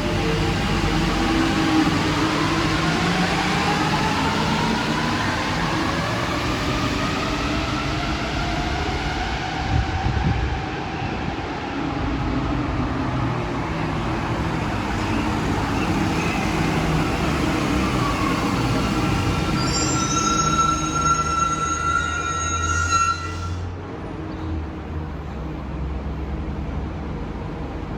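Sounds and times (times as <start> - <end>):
high wheel squeal: 18.0 - 23.8.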